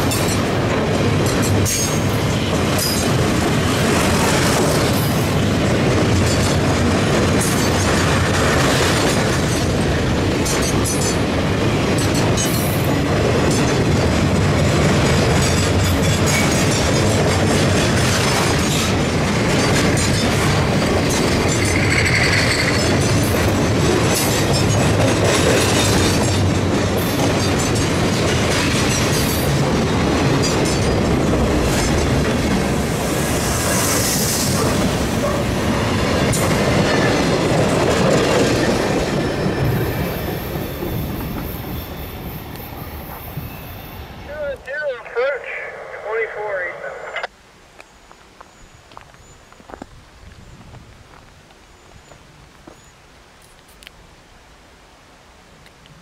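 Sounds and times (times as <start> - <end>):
train wheels clicking over rail joints: 0.0 - 32.6
wheel squeal: 21.5 - 22.9.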